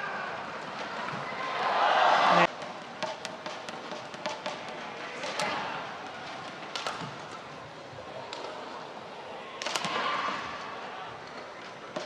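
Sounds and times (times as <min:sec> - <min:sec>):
rackets striking shuttlecock: 0:02.5 - 0:07.2.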